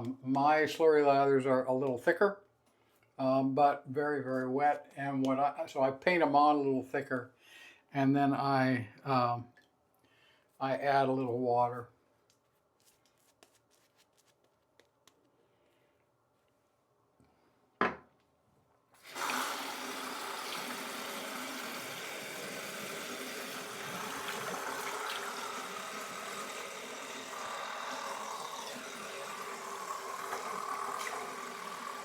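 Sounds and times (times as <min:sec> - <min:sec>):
tap water running into sink: 0:19.0 - 0:32.0.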